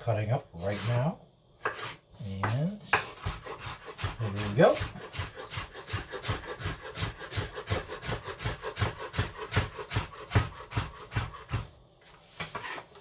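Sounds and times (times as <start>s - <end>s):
knife chopping vegetables on board: 1.6s - 11.8s.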